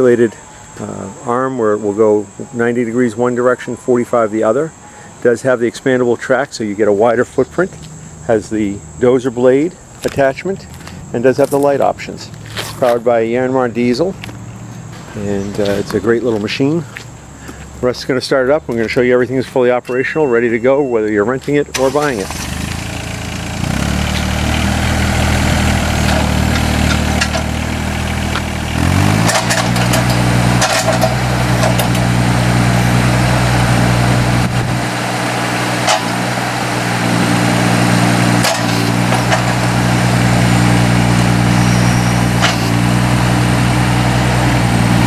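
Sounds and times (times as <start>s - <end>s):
excavator diesel engine running: 19.9s - 45.0s
short clanks and knocks: 26.0s - 27.5s, 29.2s - 32.0s, 38.4s - 39.6s.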